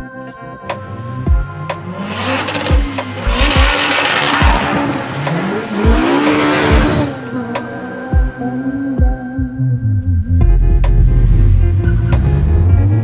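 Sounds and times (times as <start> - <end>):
car engine accelerating past: 0.8 - 8.5.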